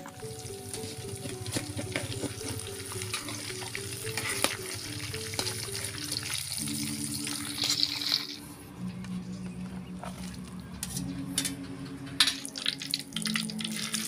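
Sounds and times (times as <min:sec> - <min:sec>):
metal utensils scraping a wok: 0:00.8 - 0:06.3.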